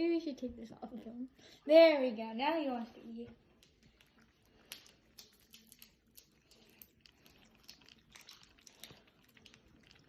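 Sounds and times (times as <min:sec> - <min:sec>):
cat chewing food: 0:03.5 - 0:10.0.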